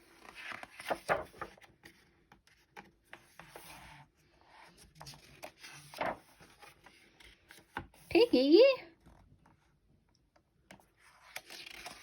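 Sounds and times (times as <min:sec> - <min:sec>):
paper rustling: 0:00.1 - 0:03.9, 0:04.7 - 0:08.0, 0:11.0 - 0:12.0.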